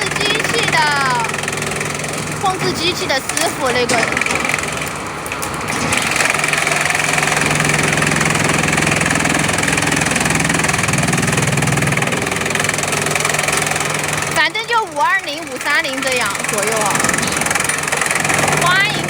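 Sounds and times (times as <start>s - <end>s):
chipping machine running: 0.0s - 19.0s.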